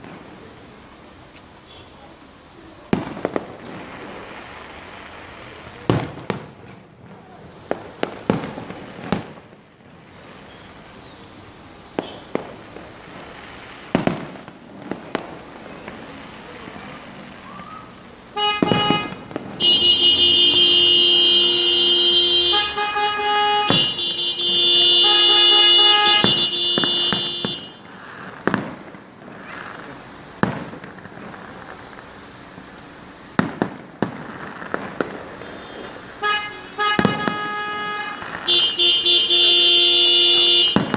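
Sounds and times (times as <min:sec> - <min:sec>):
fireworks bangs: 0:00.0 - 0:40.9
car horns honking: 0:18.3 - 0:28.0, 0:35.4 - 0:40.9.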